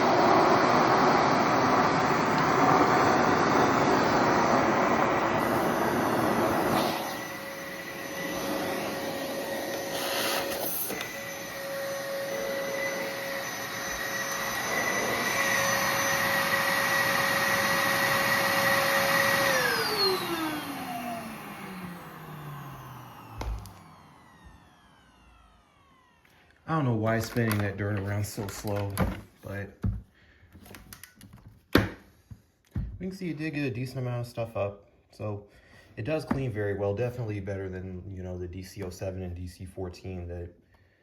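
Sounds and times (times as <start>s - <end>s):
vacuum cleaner motor whine: 0.0s - 29.2s.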